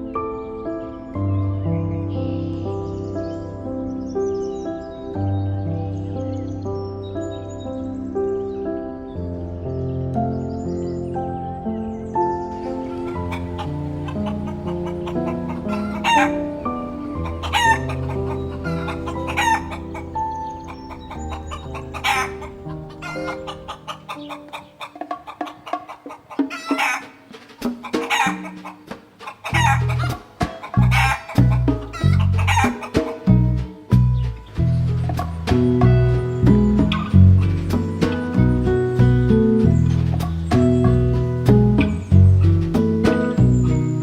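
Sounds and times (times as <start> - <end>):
soft background music: 0.0 - 44.0
chickens clucking: 12.6 - 33.7.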